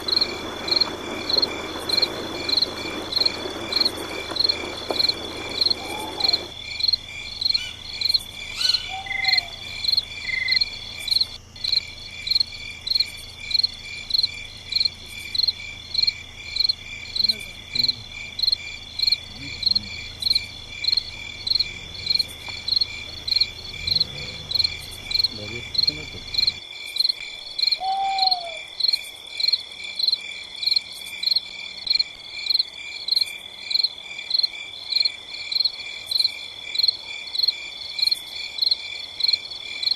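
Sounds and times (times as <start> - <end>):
insects trilling: 0.0 - 39.9
pulsing insect chirp: 0.0 - 39.9
lower falling call: 4.6 - 6.5, 8.6 - 10.6, 27.8 - 28.7.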